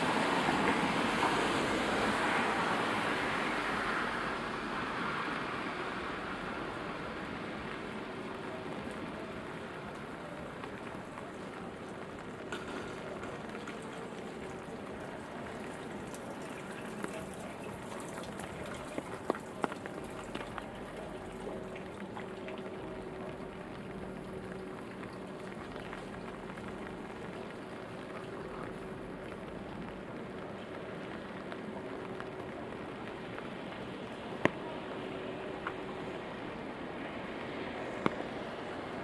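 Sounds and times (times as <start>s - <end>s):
steady rainfall: 0.0s - 39.0s.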